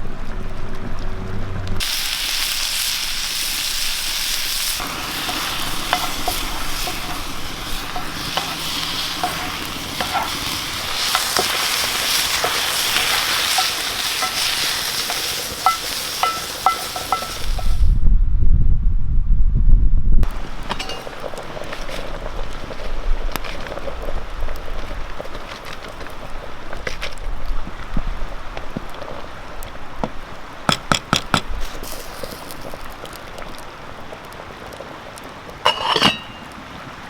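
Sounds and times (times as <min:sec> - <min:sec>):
food sizzling in a pan: 0:01.8 - 0:17.9, 0:20.2 - 0:29.5, 0:30.7 - 0:34.1, 0:35.6 - 0:36.6
metal utensil tapping a pan: 0:05.2 - 0:17.8, 0:20.7 - 0:21.2, 0:30.7 - 0:31.5, 0:35.7 - 0:36.5
wind rumble on microphone: 0:17.4 - 0:20.7, 0:26.2 - 0:30.4.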